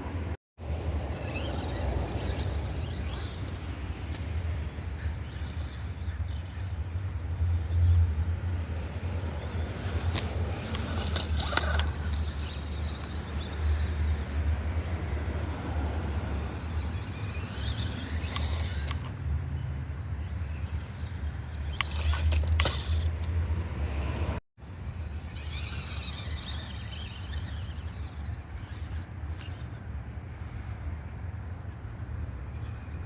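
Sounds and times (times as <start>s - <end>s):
sharp clicks over rough ground: 1.0s - 15.3s, 16.0s - 19.2s, 20.2s - 23.4s, 25.2s - 29.8s
electric motor whining: 1.0s - 19.3s, 24.7s - 33.0s.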